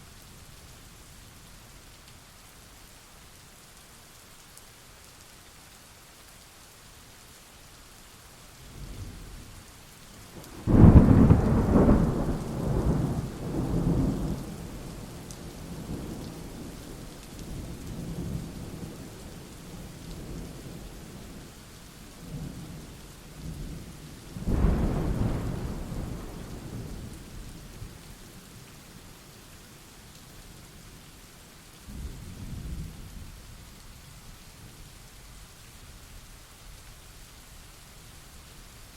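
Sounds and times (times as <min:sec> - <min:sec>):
steady rain: 0:00.0 - 0:38.9
thunder rumbling: 0:10.6 - 0:15.0, 0:24.4 - 0:27.7.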